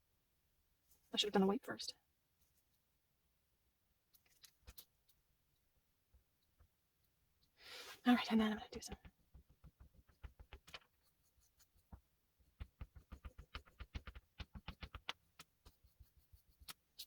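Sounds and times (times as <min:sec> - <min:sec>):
oil pastel strokes on paper: 0:07.7 - 0:17.0.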